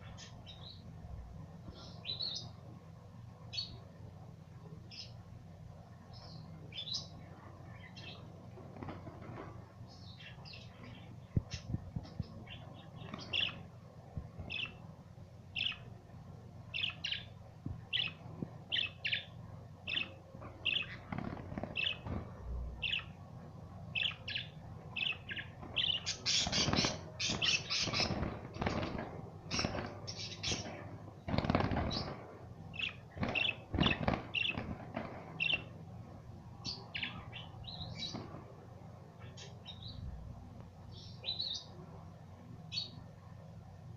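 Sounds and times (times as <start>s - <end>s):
budgerigars chirping: 24.0s - 28.9s.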